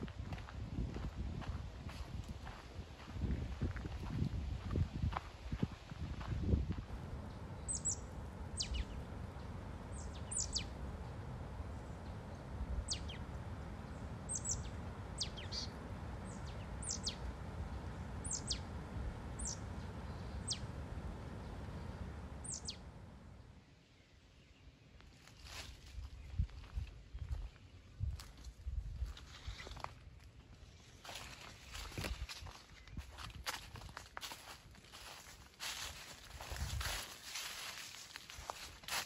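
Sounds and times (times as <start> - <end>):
footsteps on dirt trail: 0.0 - 7.6, 31.0 - 39.0
low outdoor hiss: 6.2 - 25.7
bird calling with falling notes: 7.6 - 9.0, 17.9 - 22.9.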